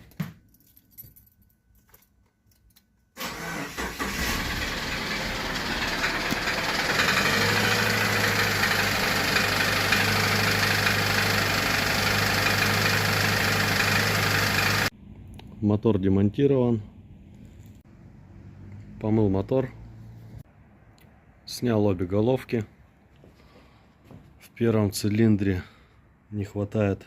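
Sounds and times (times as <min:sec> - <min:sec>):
car engine starting and running: 0:03.2 - 0:15.0.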